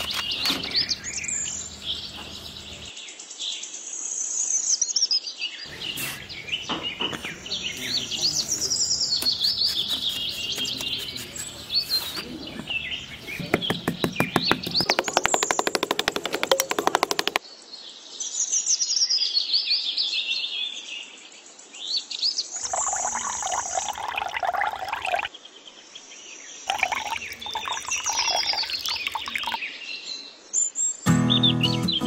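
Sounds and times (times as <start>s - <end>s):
small birds chirping and singing: 0.0s - 2.9s, 5.7s - 15.4s
fast run of clicks: 12.6s - 17.4s.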